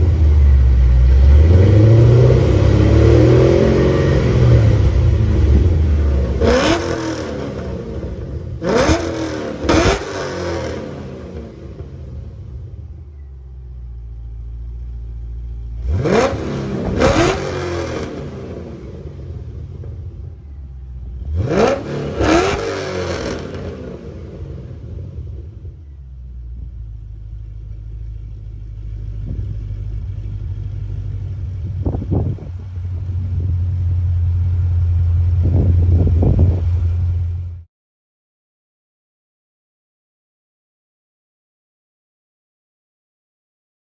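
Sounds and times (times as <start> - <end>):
engine revving: 0.0 - 13.0, 14.4 - 26.0, 27.4 - 37.7
car engine idling: 0.0 - 37.7.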